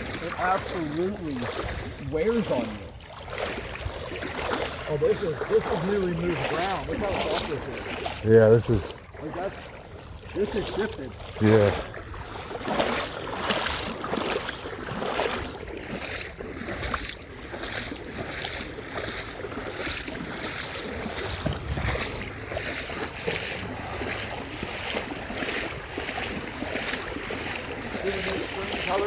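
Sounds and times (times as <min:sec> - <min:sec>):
footsteps crunching on sand: 0:17.6 - 0:29.0
wind on microphone: 0:20.8 - 0:26.6.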